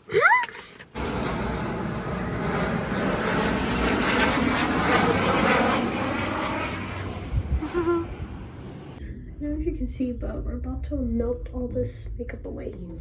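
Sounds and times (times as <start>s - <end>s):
steady rushing noise: 1.0s - 11.2s.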